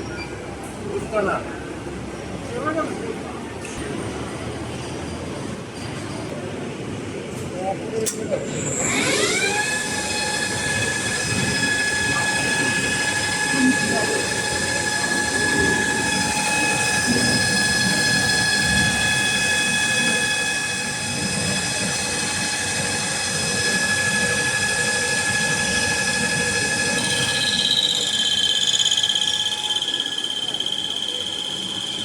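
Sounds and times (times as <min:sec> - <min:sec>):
metal lathe whining: 0:08.5 - 0:32.0
higher wavering tone: 0:08.7 - 0:32.0.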